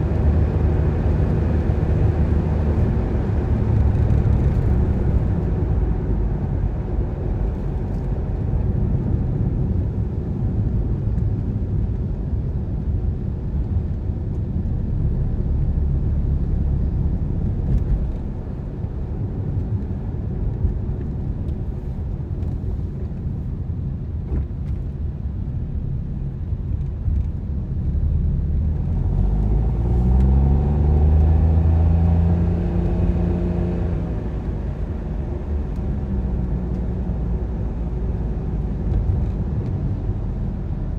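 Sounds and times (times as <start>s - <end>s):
car engine rumble: 0.0s - 40.9s
road noise: 0.0s - 40.9s
engine accelerating: 28.2s - 34.6s.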